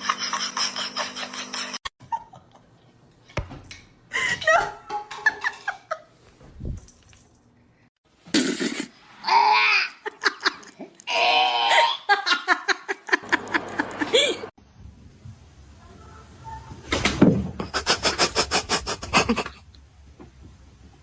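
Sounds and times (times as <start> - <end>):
people laughing: 12.1 - 14.5.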